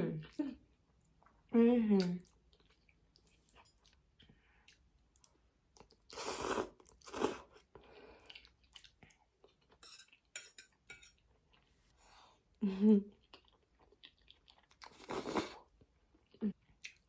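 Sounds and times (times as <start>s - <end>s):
person chewing spaghetti: 2.2s - 10.3s, 13.1s - 17.0s.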